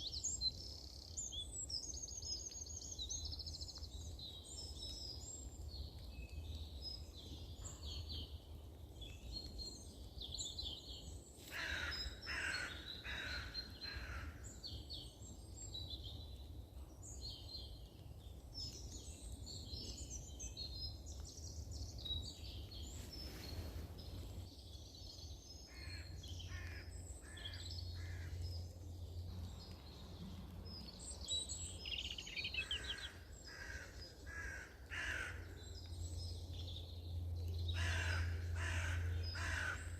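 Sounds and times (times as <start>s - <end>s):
songbirds chirping and singing: 0.0s - 39.9s
crows cawing: 11.5s - 14.4s, 25.7s - 28.4s, 32.6s - 35.6s, 37.8s - 39.9s
steady low rumble: 26.9s - 33.6s.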